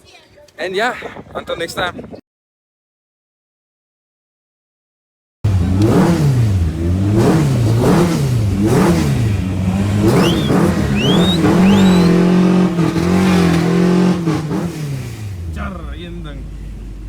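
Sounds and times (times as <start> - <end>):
car engine revving: 5.5 - 17.0
short high chirps: 10.1 - 12.4.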